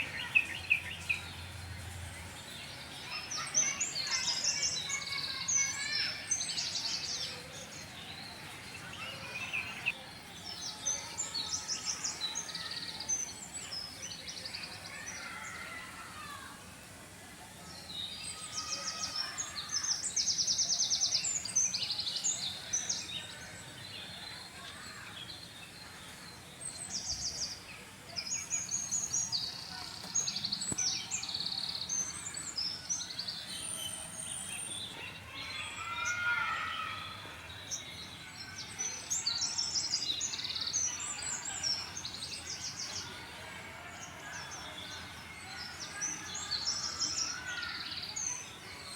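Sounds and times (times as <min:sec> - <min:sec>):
outdoor background noise: 0:00.0 - 0:48.9
small birds chirping: 0:00.0 - 0:48.9.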